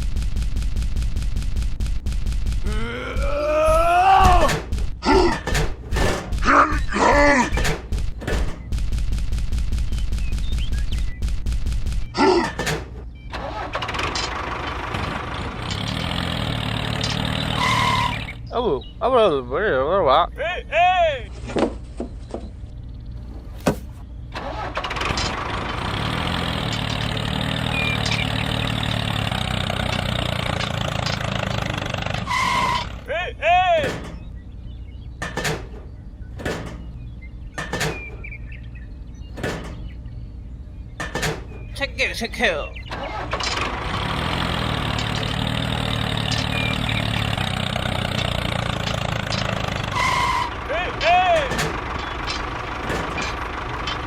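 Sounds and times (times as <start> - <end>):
rapid evenly spaced bangs: 0.0 - 2.7, 4.3 - 13.0
engine running: 0.0 - 20.3, 21.4 - 54.0
low hum: 21.3 - 54.0.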